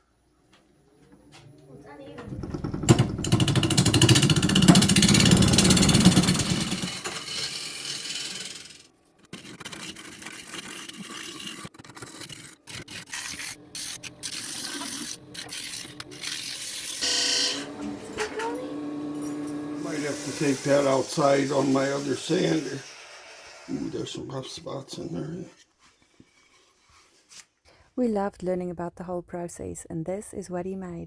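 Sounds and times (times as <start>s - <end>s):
wood lathe tool scraping: 2.2s - 24.0s.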